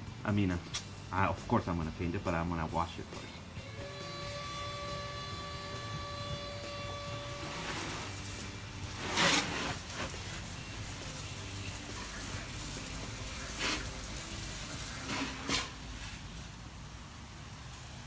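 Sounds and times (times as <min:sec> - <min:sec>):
hose nozzle spraying water: 0:07.2 - 0:16.5.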